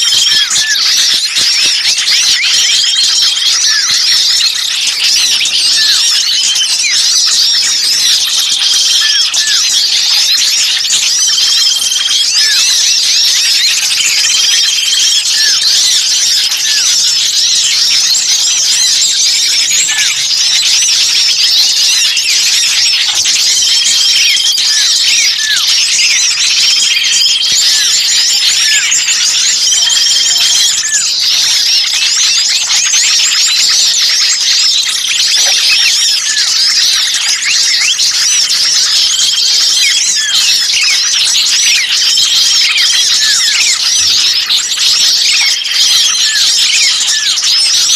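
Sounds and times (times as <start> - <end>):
songbirds chirping and twittering: 0.0 - 47.9.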